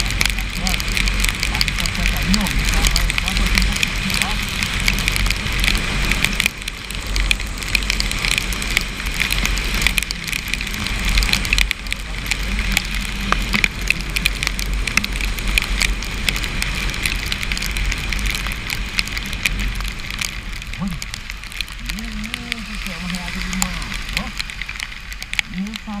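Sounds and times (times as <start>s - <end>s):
heavy rain drops on microphone: 0.0s - 26.0s
motorcycle engine rumble: 0.0s - 26.0s.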